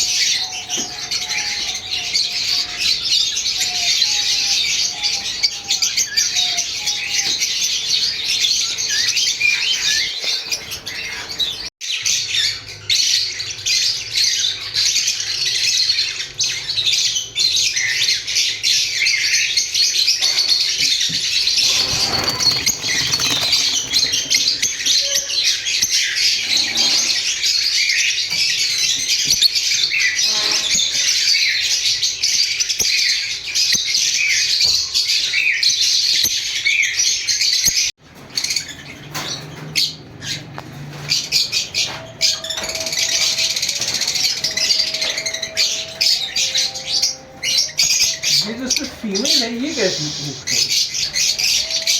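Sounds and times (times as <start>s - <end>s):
lovebirds chattering: 20.4s - 28.3s, 38.6s - 51.9s.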